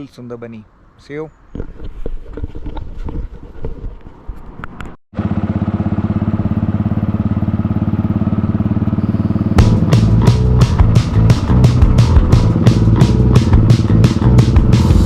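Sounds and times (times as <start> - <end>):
motorcycle engine running: 5.1 - 15.0.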